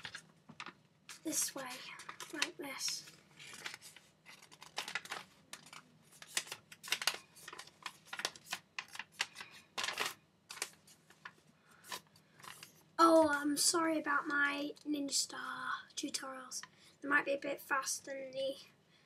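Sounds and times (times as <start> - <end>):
paper being folded and creased: 0.0 - 12.8.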